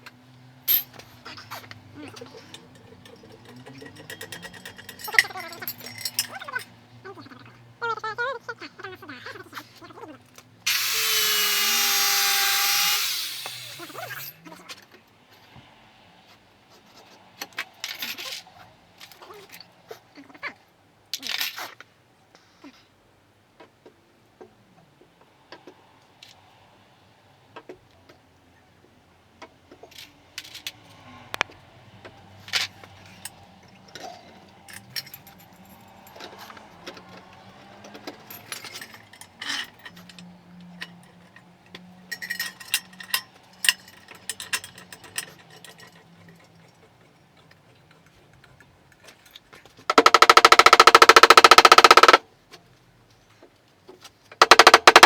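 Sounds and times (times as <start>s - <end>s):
metal tools clicking on car panel: 49.9s - 52.2s, 54.4s - 55.0s
rapid rattling burst: 49.9s - 52.2s, 54.4s - 55.0s.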